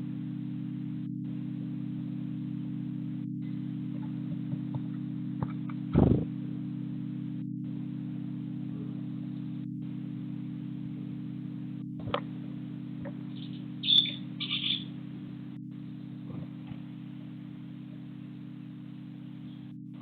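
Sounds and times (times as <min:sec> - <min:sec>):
steady low hum: 0:00.0 - 0:20.0
small bird chirping: 0:13.2 - 0:15.0.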